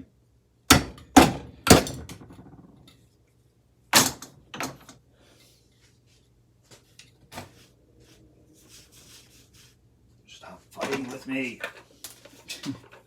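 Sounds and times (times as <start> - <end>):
knocks on metal housing: 0.7 - 2.6.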